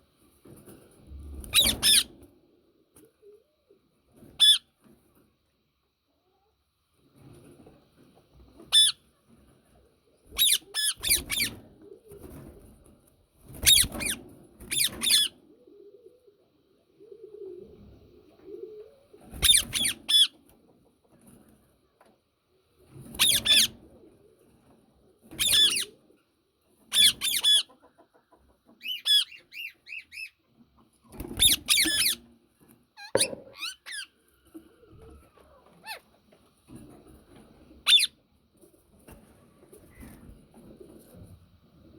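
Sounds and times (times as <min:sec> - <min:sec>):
parakeet screeching: 0:01.5 - 0:02.1, 0:10.4 - 0:11.5, 0:13.6 - 0:15.3, 0:23.2 - 0:23.7, 0:25.4 - 0:25.9, 0:31.4 - 0:32.2, 0:33.0 - 0:34.1, 0:37.9 - 0:38.1.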